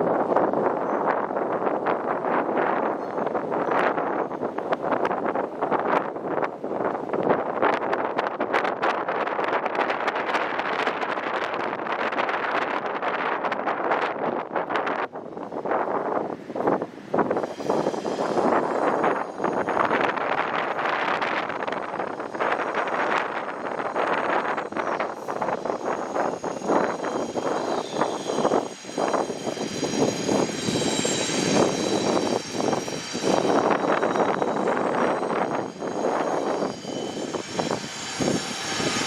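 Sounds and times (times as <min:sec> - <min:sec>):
train noise: 0:00.0 - 0:39.0
wind buffeting microphone: 0:00.0 - 0:39.0
faint high whine: 0:16.6 - 0:39.0.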